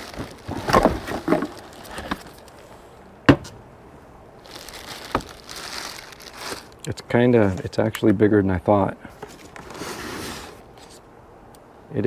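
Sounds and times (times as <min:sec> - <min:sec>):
packaging rustling and crinkling: 0:00.0 - 0:02.8, 0:04.4 - 0:06.8, 0:09.2 - 0:11.0
knock on cardboard box: 0:03.3 - 0:03.6.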